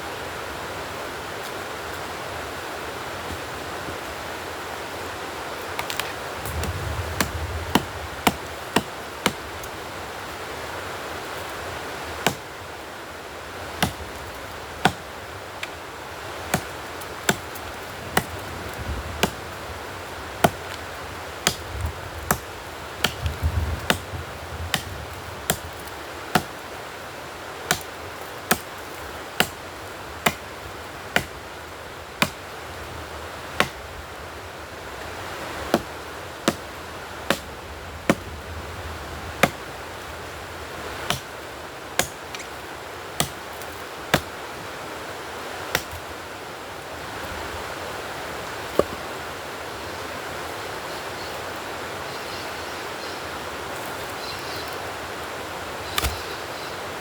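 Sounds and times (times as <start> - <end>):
steady hiss: 0.0 - 57.0
blade chopping wood: 5.8 - 9.4, 12.2 - 12.5, 13.8 - 14.1, 14.8 - 15.8, 16.5 - 18.4, 19.2 - 19.4, 20.4 - 20.8, 21.4 - 21.7, 22.3 - 24.1, 24.7 - 24.9, 25.5 - 26.6, 27.7 - 28.7, 29.4 - 29.6, 30.2 - 30.5, 31.1 - 31.4, 32.2 - 32.4, 33.6 - 33.8, 35.7 - 35.9, 36.5 - 36.7, 37.3 - 37.5, 41.1 - 41.3, 42.0 - 42.6, 43.2 - 44.3, 45.7 - 46.0, 48.8 - 49.0, 55.9 - 56.4.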